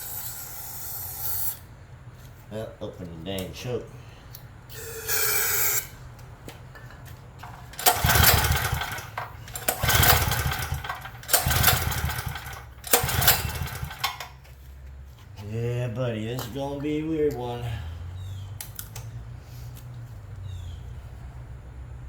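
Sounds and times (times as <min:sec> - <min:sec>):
generator engine cranking: 0:07.4 - 0:14.4.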